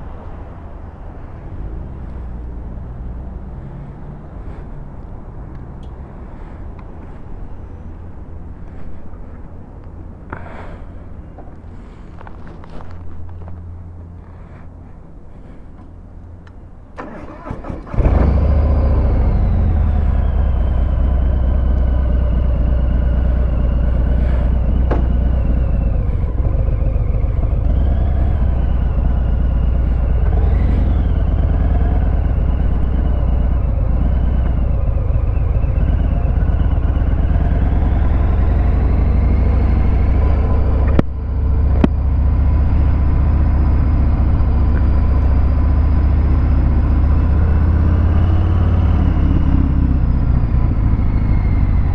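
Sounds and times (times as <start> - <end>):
motorcycle engine idling: 15.8 - 51.9.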